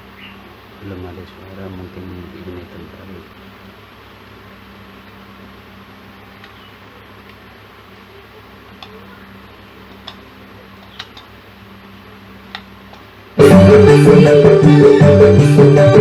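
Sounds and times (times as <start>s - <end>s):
low hum and hiss: 0.0s - 16.0s
faint clicks: 10.8s - 11.4s
loud music from speaker: 13.4s - 16.0s.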